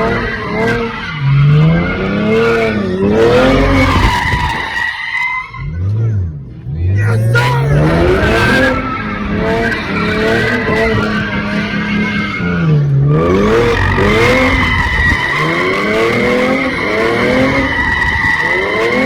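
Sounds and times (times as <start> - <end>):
tire squeal: 0.0 - 6.4, 7.7 - 19.0
car engine revving: 5.5 - 19.0.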